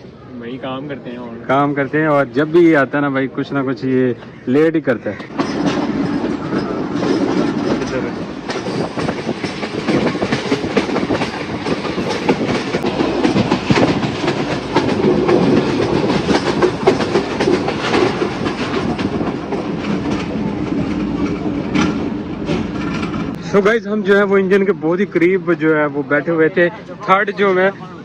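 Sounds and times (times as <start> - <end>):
train rumbling on track: 0.0 - 28.0
train wheels clickety-clack: 5.0 - 25.2.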